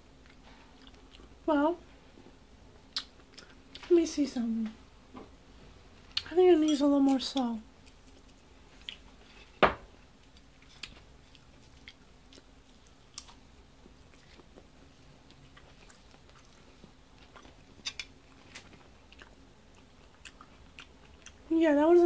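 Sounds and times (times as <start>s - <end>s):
person chewing crunchy food: 10.2s - 21.4s.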